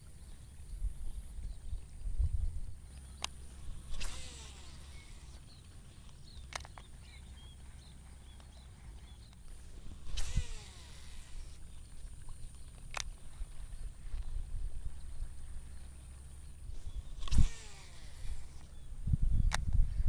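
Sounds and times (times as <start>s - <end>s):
reel spool whirring: 0.0s - 19.2s
wind rumble on microphone: 0.0s - 20.0s
sharp clicks: 3.0s - 7.2s, 10.1s - 11.6s, 12.8s - 13.2s, 17.2s - 18.7s
fishing cast whoosh: 3.3s - 5.4s, 9.9s - 11.6s, 17.1s - 18.7s.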